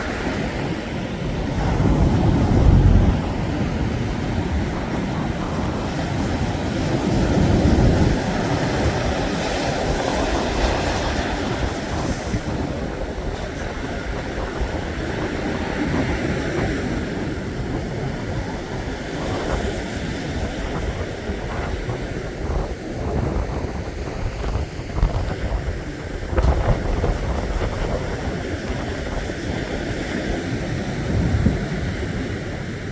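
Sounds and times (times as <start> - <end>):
heavy low rumble: 0.0 - 9.2
surf breaking on a beach: 0.0 - 32.9
wind buffeting microphone: 0.0 - 32.9.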